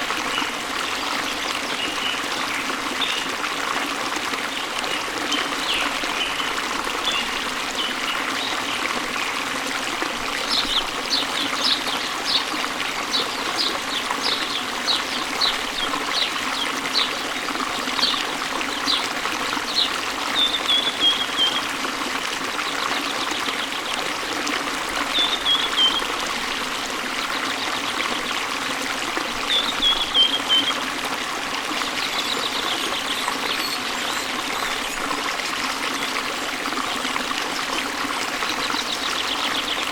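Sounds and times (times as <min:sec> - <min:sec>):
waterfall rushing water: 0:00.0 - 0:39.9.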